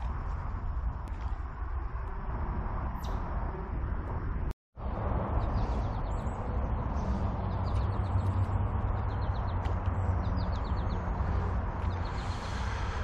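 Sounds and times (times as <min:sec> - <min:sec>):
low rushing background: 0:00.0 - 0:13.0
birds chirping in trills: 0:05.3 - 0:13.0.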